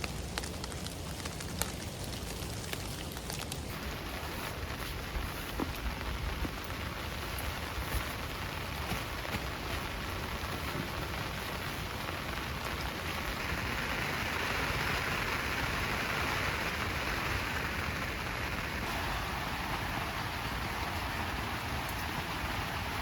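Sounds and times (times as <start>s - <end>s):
rain drumming on a tent: 0.0s - 23.0s.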